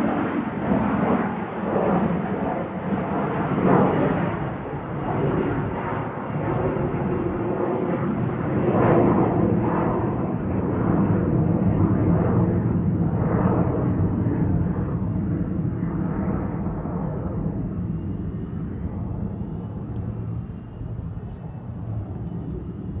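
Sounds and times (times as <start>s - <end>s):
jet engines roaring on takeoff: 0.0s - 23.0s
faint high whine: 13.1s - 23.0s.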